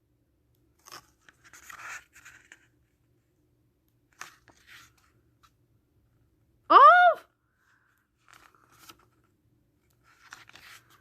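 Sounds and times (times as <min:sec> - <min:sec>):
paper and plastic rustling: 0:08.2 - 0:11.0.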